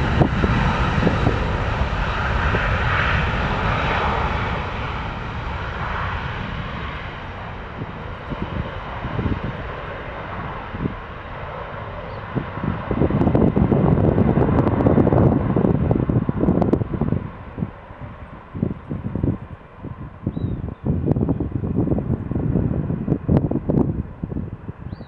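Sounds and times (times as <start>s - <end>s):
jet engines roaring: 0.0s - 25.0s
wind gusts on microphone: 0.0s - 25.0s.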